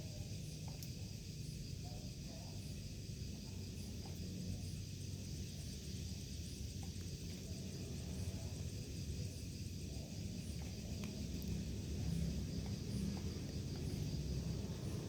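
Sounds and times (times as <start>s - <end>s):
steady low rumble: 4.6s - 15.0s.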